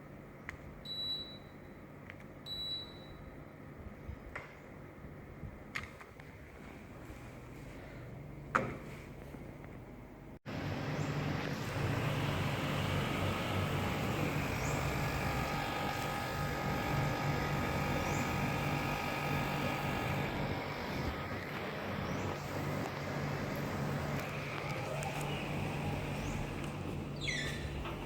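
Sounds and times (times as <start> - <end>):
air conditioner humming: 6.5 - 28.0.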